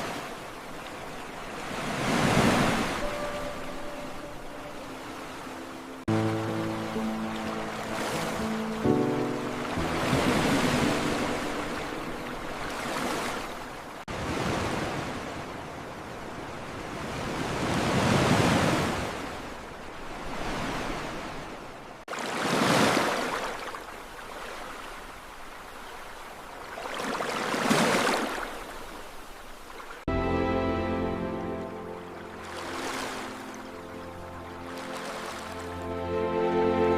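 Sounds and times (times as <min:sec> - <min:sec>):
ocean waves washing in: 0:00.0 - 0:36.9
music: 0:03.0 - 0:12.9, 0:30.1 - 0:36.9.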